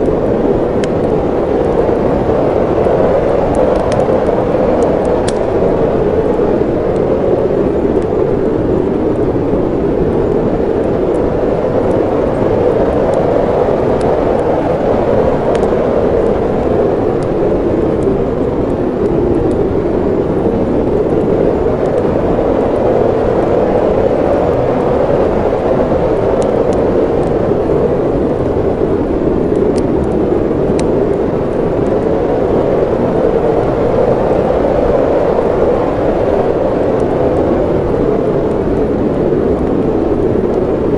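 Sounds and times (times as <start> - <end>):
blizzard wind: 0.0 - 40.9
fireplace crackles: 0.0 - 40.9.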